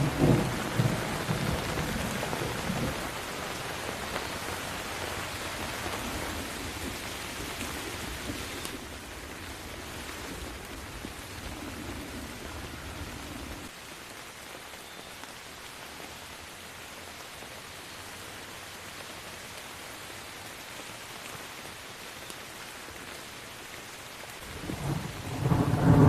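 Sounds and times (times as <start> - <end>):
thunder rumbling: 0.0 - 3.2, 24.4 - 26.0
steady rain: 0.0 - 26.0.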